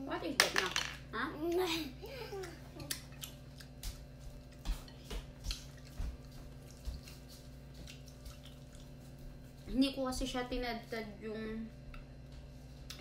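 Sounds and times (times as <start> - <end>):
low steady hum: 0.0 - 13.0
chewing with wet smacks: 2.4 - 9.6.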